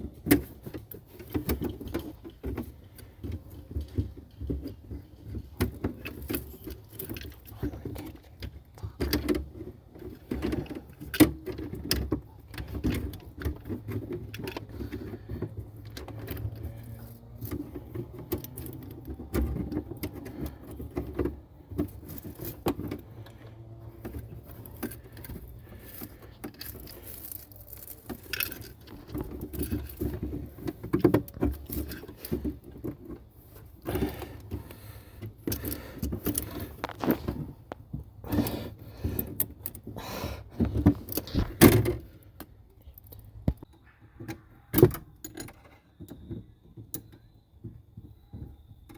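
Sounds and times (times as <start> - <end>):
metal tools clinking and rattling: 10.1 - 40.0.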